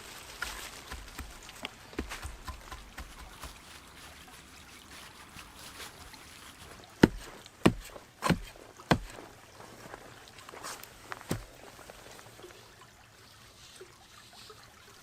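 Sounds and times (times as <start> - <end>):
faint rustling: 0.0 - 12.3
sharp knocks: 7.0 - 9.2.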